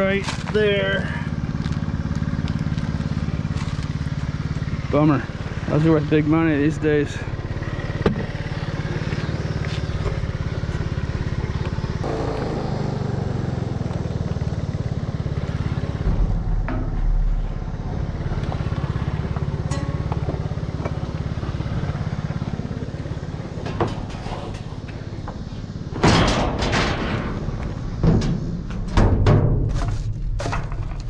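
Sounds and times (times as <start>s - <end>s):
engine running with low hum: 0.0s - 31.0s
heavy low thump: 15.4s - 21.5s.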